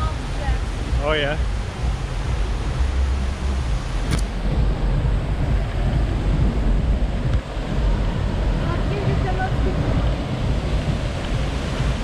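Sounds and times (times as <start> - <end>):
waterfall rushing: 0.0 - 12.0
wind rumbling on microphone: 0.0 - 12.0
sharp click: 4.1 - 4.3.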